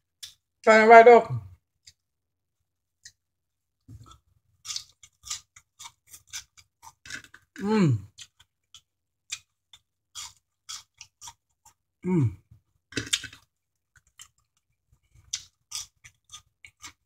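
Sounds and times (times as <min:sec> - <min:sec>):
wet chewing mouth sounds: 0:04.0 - 0:11.8, 0:13.0 - 0:17.0.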